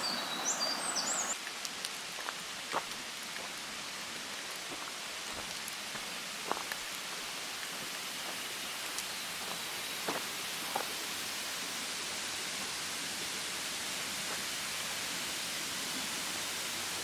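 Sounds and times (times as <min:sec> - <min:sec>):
waterfall rushing: 0:00.0 - 0:01.4.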